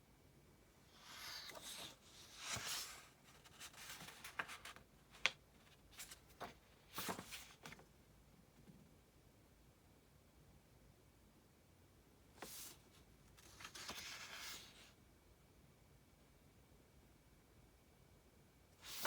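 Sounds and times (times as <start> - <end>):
book page turning: 1.0 - 7.8, 13.4 - 14.8.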